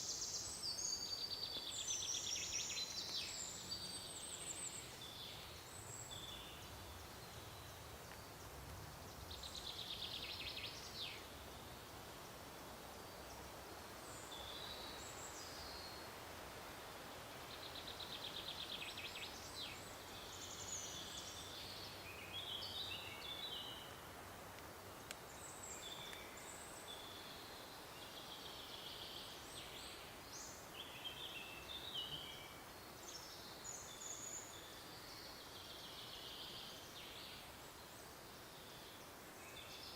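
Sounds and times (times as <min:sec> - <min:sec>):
faint background hiss: 0:00.0 - 0:39.9
songbirds chirping and trilling: 0:00.0 - 0:39.9.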